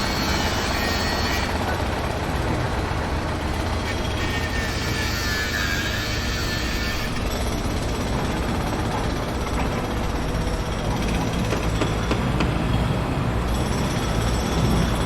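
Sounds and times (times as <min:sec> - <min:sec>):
construction machinery rumbling: 0:00.0 - 0:15.0
sharp metallic knocks: 0:09.4 - 0:12.8.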